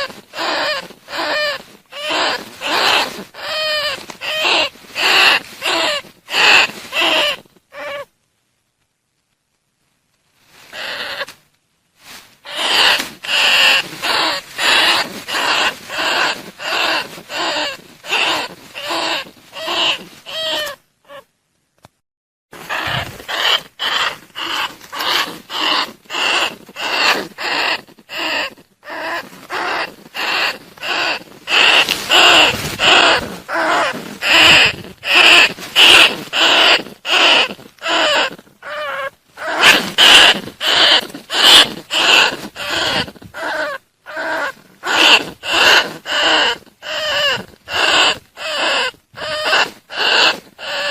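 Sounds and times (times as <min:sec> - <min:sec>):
harsh rat lure calls: 0:12.5 - 0:21.2, 0:22.7 - 0:50.9.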